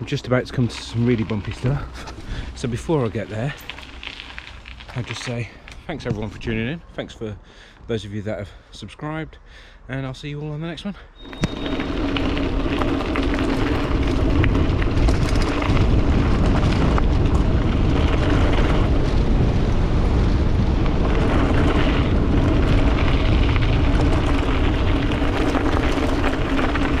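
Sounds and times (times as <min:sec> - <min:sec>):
bike tyres rumbling on trail: 0:00.0 - 0:08.7, 0:11.2 - 0:27.0
bike rattling clicks: 0:11.4 - 0:19.2.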